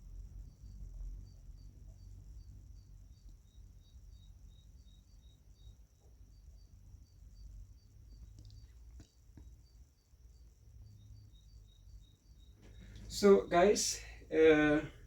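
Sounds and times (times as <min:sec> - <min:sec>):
insect chirping: 0:00.0 - 0:15.0
low background rumble: 0:00.0 - 0:15.0
steady high hum: 0:09.8 - 0:15.0.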